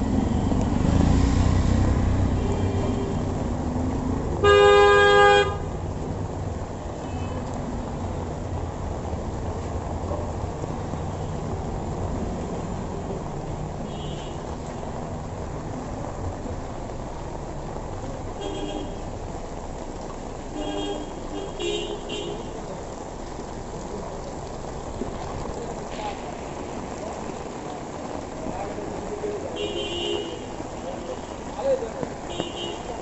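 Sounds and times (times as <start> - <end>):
rain on a wet street: 0.0 - 33.0
traffic noise: 0.0 - 33.0
vehicle horn toots: 4.4 - 5.7.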